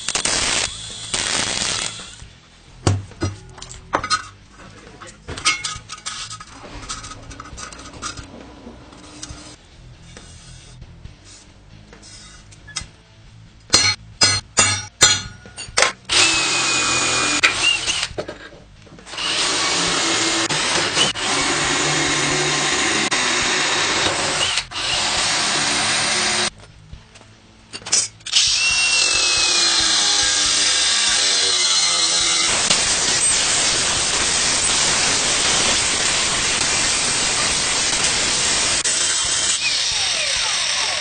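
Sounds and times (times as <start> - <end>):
handheld power tool running: 16.1 - 18.2, 19.1 - 26.5, 28.3 - 41.0.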